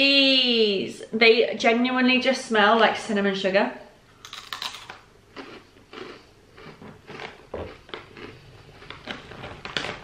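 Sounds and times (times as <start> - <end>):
crunchy snack being chewed: 4.2 - 10.0.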